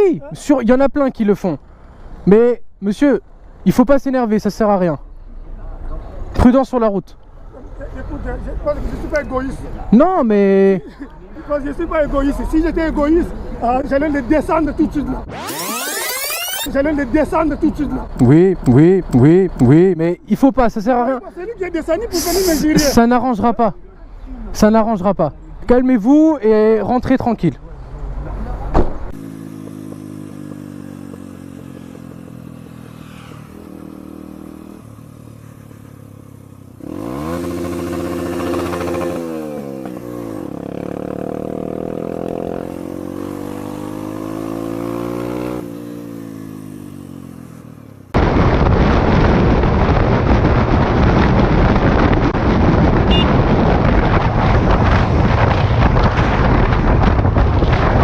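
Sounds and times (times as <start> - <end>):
motorcycle engine shifting gears: 28.0 - 47.8
wind rushing over microphone: 48.2 - 58.0.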